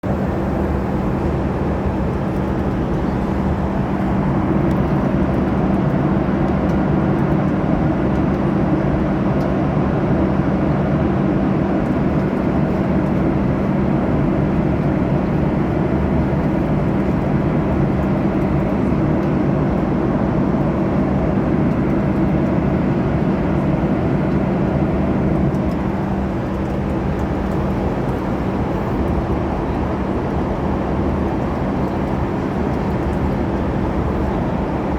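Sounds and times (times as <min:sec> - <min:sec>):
aeroplane engines droning: 0:00.0 - 0:34.9.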